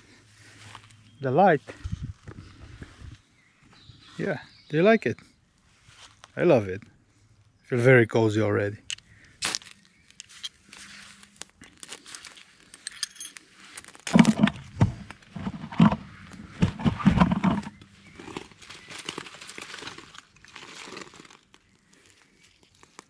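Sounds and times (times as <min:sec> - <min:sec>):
dry material crinkling: 0:08.8 - 0:23.0.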